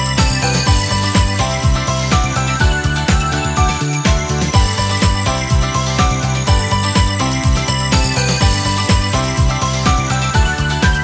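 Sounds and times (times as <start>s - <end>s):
music with beat and chiming notes: 0.0s - 11.0s.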